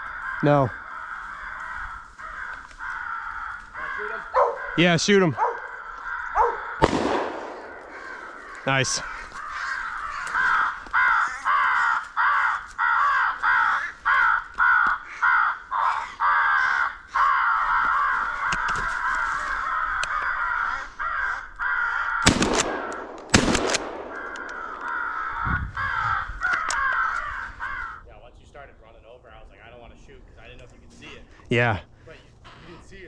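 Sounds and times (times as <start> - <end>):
crows cawing: 0.0 - 28.1
shotgun blasts: 6.8 - 8.1, 22.2 - 24.8.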